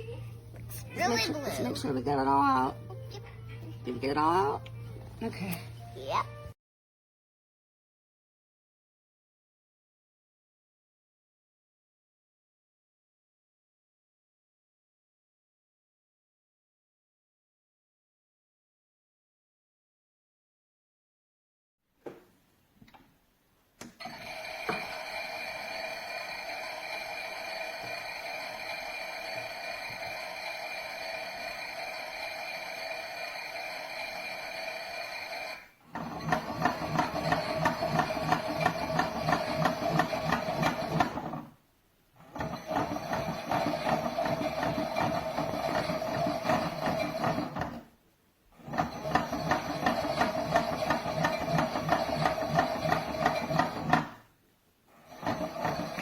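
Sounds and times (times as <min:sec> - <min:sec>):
toy washing machine whirring: 0:00.9 - 0:02.7, 0:24.0 - 0:41.5, 0:42.2 - 0:47.8, 0:48.6 - 0:54.2, 0:55.0 - 0:56.0.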